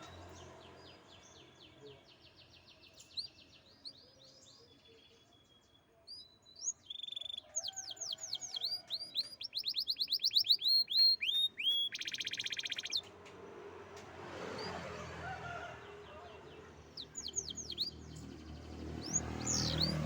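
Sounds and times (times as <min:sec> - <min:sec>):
canary singing: 0:06.1 - 0:13.1, 0:16.8 - 0:20.0.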